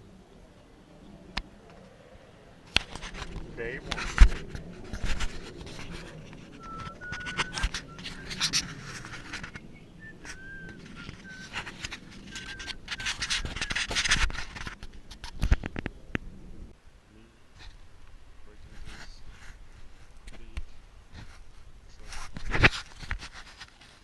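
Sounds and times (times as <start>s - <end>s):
scraping and rubbing: 2.7s - 15.9s, 18.6s - 20.4s, 21.1s - 24.0s
short high squeaks: 5.7s - 14.7s.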